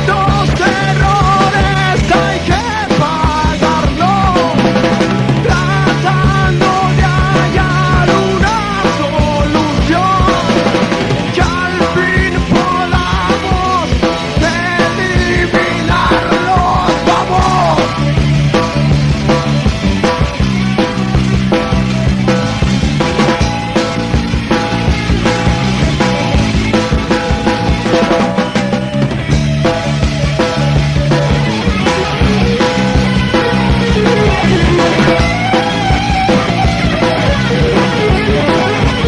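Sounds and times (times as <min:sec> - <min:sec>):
person singing lead vocal: 0:00.0 - 0:18.2, 0:30.4 - 0:36.1
rock band playing live: 0:00.0 - 0:39.0.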